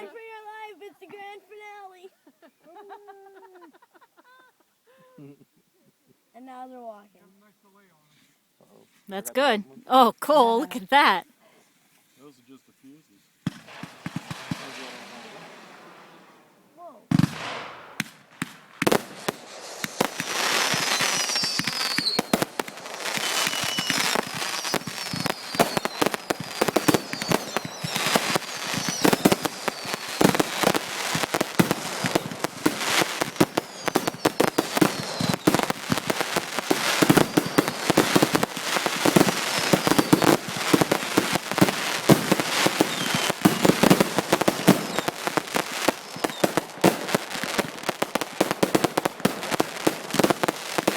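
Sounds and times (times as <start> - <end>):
fireworks bangs and crackle: 10.3 - 11.2, 13.4 - 50.9
falling fireworks whistles: 13.4 - 50.9.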